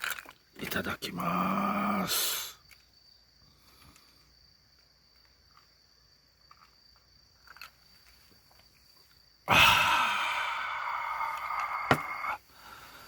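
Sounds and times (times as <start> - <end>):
high-pitched insect call: 0.0 - 13.0
man sighing ahh: 9.5 - 13.0.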